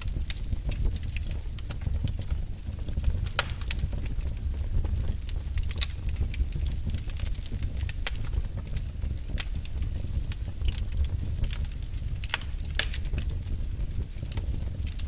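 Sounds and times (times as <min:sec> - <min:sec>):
low fire rumble: 0:00.0 - 0:15.0
sharp fire pops: 0:00.0 - 0:15.0
wood fire crackling: 0:00.0 - 0:15.0.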